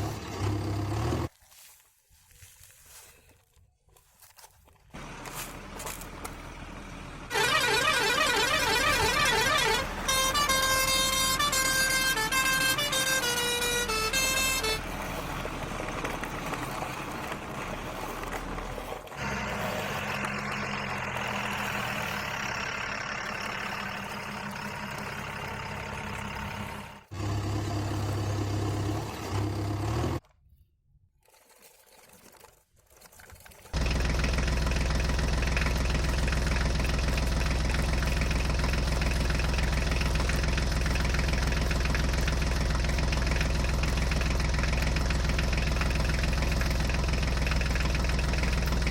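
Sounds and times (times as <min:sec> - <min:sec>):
toy horn and motor hums: 0:07.3 - 0:15.3.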